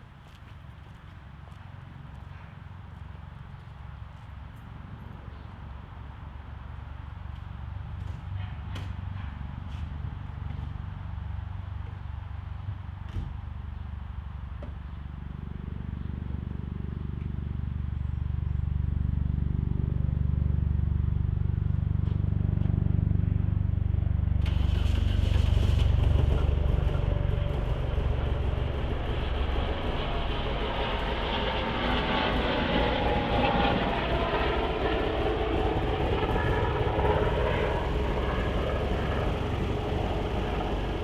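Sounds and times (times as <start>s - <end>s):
air-cooled car engine running: 24.2s - 32.5s.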